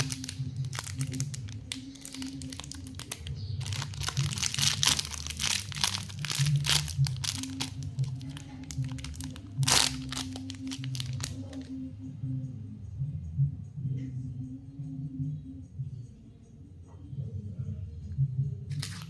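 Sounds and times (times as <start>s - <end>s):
plastic wrappers crinkling: 0.0s - 11.7s, 18.7s - 19.0s.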